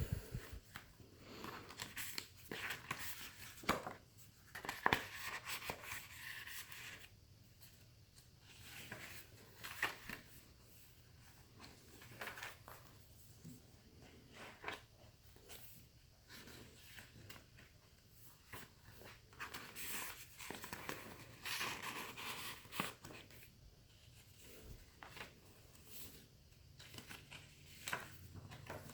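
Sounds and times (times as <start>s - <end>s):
paper pages rustling: 1.4s - 7.1s, 16.2s - 26.2s, 26.8s - 28.9s.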